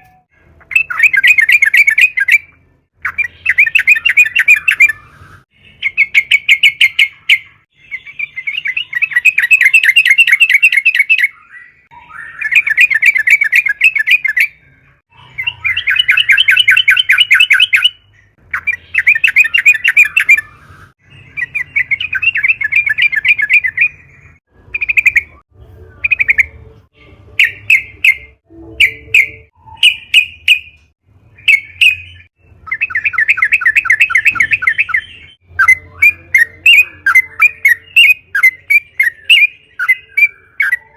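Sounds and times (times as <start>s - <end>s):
bulbul singing trills: 0.0s - 40.9s.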